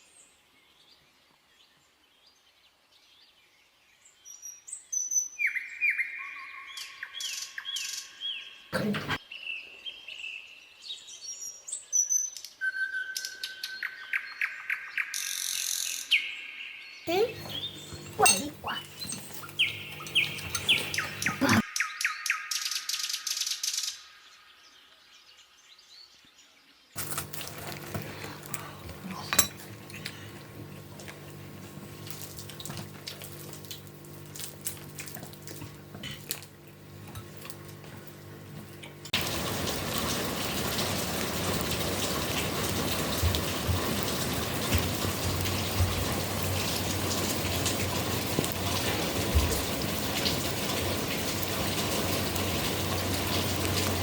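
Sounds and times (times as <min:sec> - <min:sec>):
dishes and utensils clinking: 0:17.2 - 0:21.6, 0:27.0 - 0:31.4
low steady hum: 0:27.0 - 0:54.0
water rushing: 0:39.2 - 0:54.0.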